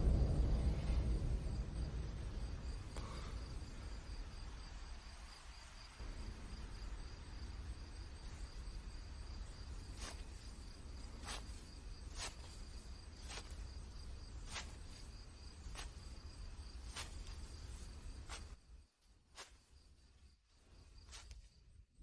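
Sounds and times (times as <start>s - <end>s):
low background hum: 0.0s - 5.1s
crickets chirping: 0.0s - 22.0s.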